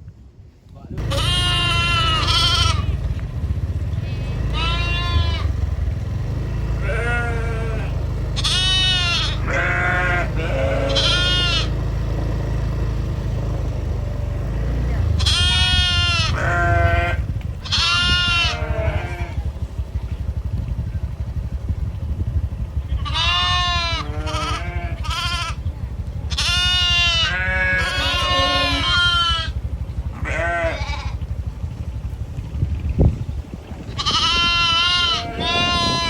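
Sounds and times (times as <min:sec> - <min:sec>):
low rumble: 0:00.0 - 0:36.0
sheep bleating: 0:01.0 - 0:03.1, 0:03.8 - 0:05.6, 0:06.8 - 0:11.8, 0:15.1 - 0:19.5, 0:23.0 - 0:25.6, 0:26.3 - 0:31.2, 0:33.9 - 0:36.0.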